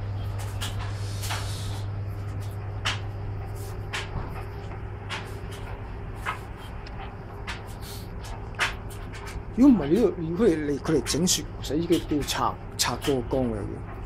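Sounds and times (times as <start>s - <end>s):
steady low hum: 0.0s - 14.0s
sharp clicks and knocks: 2.8s - 3.2s, 3.9s - 9.4s.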